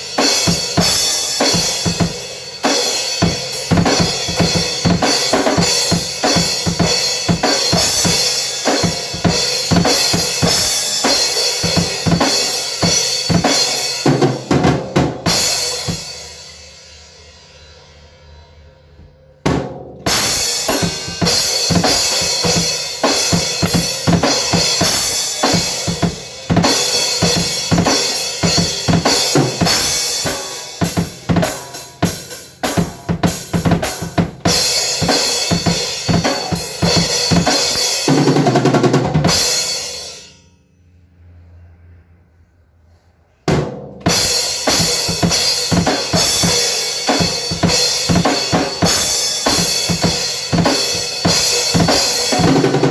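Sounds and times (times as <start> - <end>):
drum kit playing: 0.0 - 18.4, 19.0 - 40.3, 43.5 - 52.9
cymbal wash: 15.3 - 19.4.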